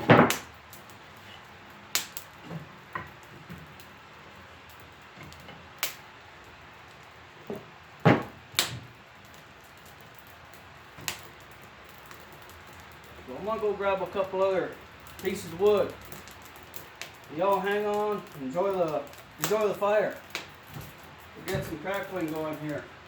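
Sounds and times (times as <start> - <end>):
wood chunks knocking: 0.0 - 0.5, 7.5 - 8.9, 19.0 - 22.6.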